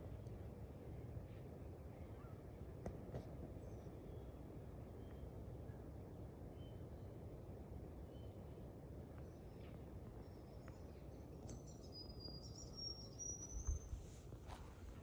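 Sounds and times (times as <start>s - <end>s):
bird chirps: 11.4s - 14.0s.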